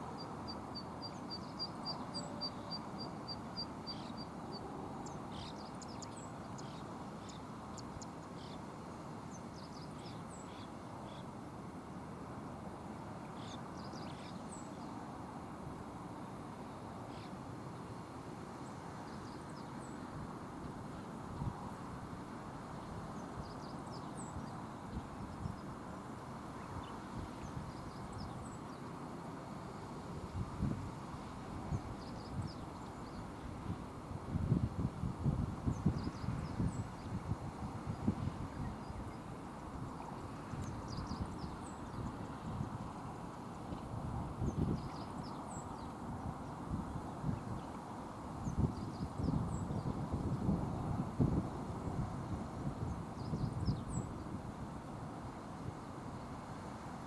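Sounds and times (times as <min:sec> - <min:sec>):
wind buffeting microphone: 0:31.6 - 0:39.2, 0:48.4 - 0:54.6.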